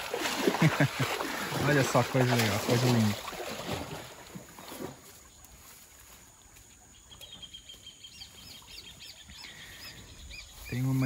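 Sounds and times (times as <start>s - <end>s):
stream sloshing: 0.0s - 11.0s
bird calling: 6.8s - 11.0s.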